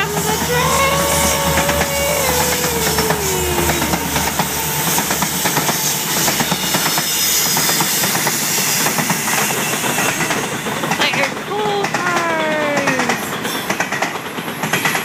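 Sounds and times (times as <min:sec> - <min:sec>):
locomotive whine: 0:00.0 - 0:10.8
train rumble and hiss: 0:00.0 - 0:15.0.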